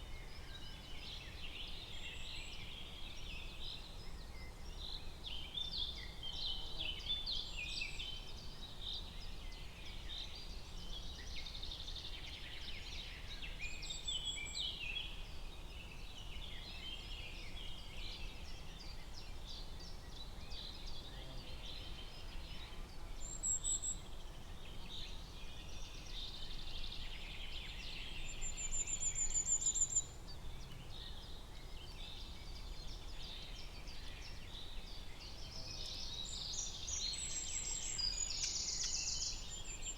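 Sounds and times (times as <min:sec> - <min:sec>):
small birds chirping: 0:34.4 - 0:39.9.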